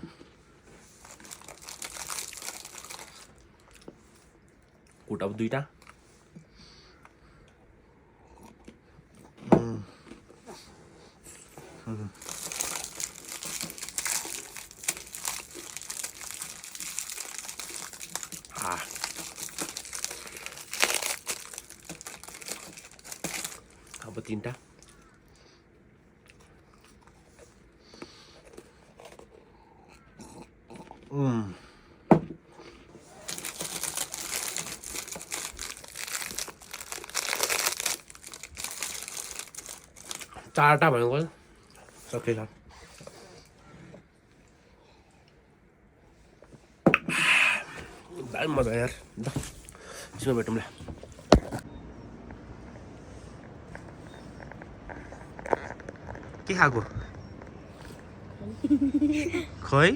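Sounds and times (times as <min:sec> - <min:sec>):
packet wrapper crinkling: 0:01.0 - 0:03.4, 0:12.1 - 0:24.2, 0:33.2 - 0:40.7.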